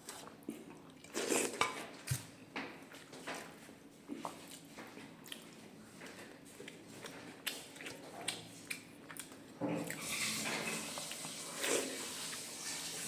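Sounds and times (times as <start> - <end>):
chewing and wet mouth noises: 4.0 - 12.9.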